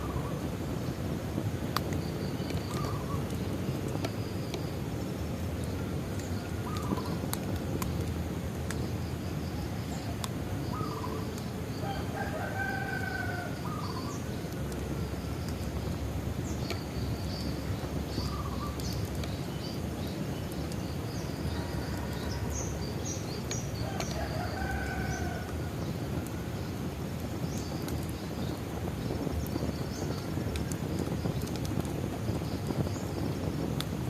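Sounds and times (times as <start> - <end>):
bonfire burning: 0.0 - 34.0
fire crackling pops: 0.0 - 34.0
small birds chirping: 0.0 - 34.0
rooster crowing: 11.8 - 13.7, 21.5 - 22.8, 23.8 - 25.7.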